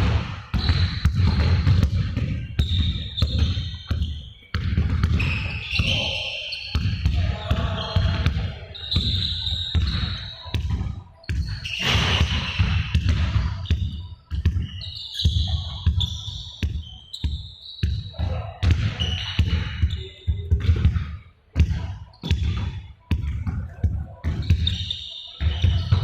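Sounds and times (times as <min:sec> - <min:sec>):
balls bouncing on a hard floor: 0:00.0 - 0:26.0.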